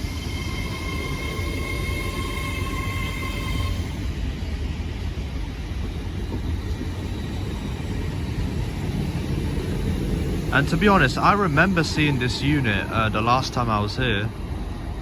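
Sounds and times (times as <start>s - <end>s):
faint high whine: 0.0s - 4.3s, 6.0s - 15.0s
train low rumble: 0.0s - 15.0s.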